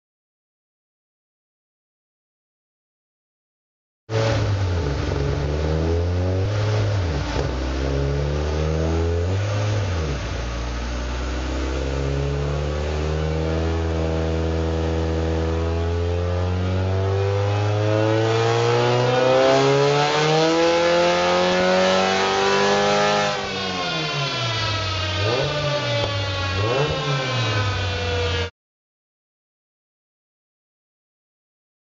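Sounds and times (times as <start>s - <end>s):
car engine revving: 4.1s - 28.5s.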